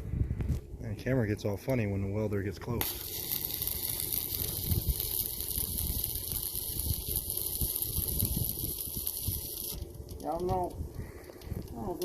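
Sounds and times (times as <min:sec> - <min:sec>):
welding arc crackling hiss: 0:02.7 - 0:12.0.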